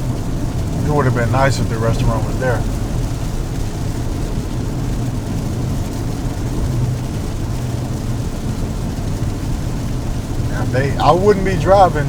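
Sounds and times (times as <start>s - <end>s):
car engine and tyres droning: 0.0s - 12.0s.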